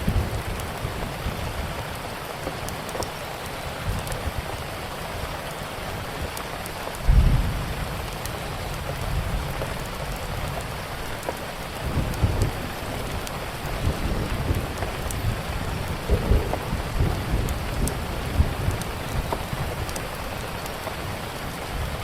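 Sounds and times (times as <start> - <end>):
steady rain: 0.0 - 22.0
wood fire crackling: 0.0 - 22.0
low rolls of thunder: 7.1 - 9.6, 11.8 - 20.0.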